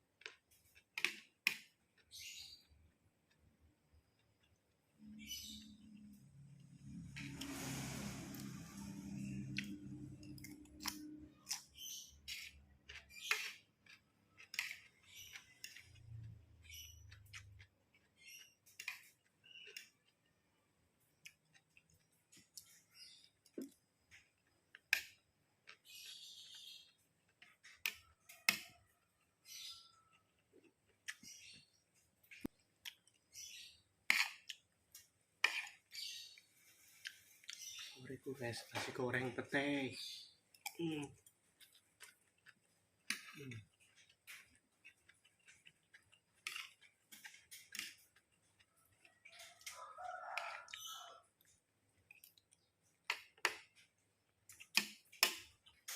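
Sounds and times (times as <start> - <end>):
chewing with wet mouth clicks: 9.5 - 20.4, 40.5 - 49.8, 50.4 - 55.9.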